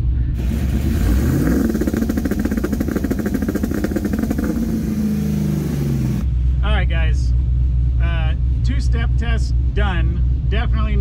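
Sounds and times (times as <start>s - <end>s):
engine revving with crackling stutter: 0.4s - 6.3s.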